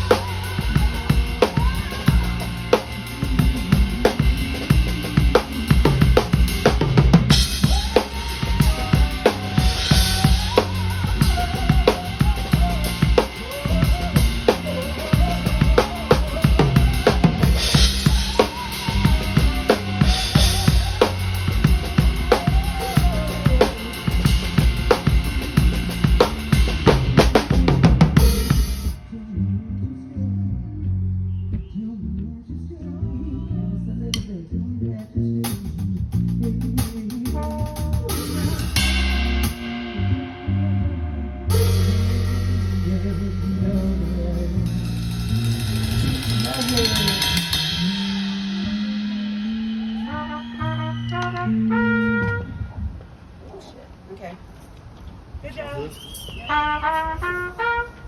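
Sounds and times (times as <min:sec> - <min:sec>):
drum kit with snare and rimshots: 0:00.0 - 0:29.0, 0:35.4 - 0:40.2, 0:41.5 - 0:52.5, 0:55.5 - 0:58.0
live band playing a groove: 0:00.0 - 0:29.0, 0:35.4 - 0:40.5, 0:41.5 - 0:52.5, 0:56.4 - 0:58.0
heavy bass line: 0:00.0 - 0:52.7
cymbal crashes: 0:38.6 - 0:40.0.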